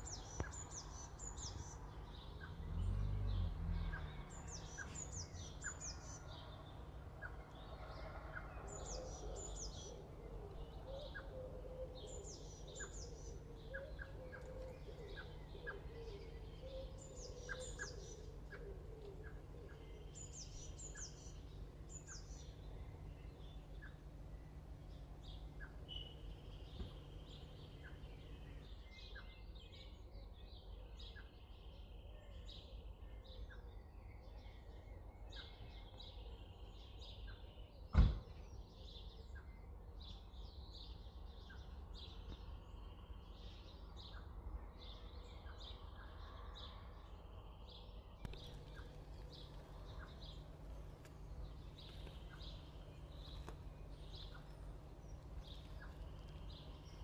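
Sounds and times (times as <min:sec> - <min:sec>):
bird chirps: 0:00.0 - 0:30.0, 0:47.1 - 0:57.0.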